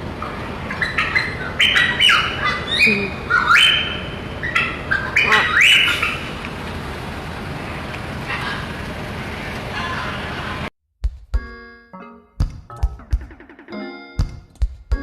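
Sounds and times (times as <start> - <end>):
small parrot squawking: 0.6 - 6.4.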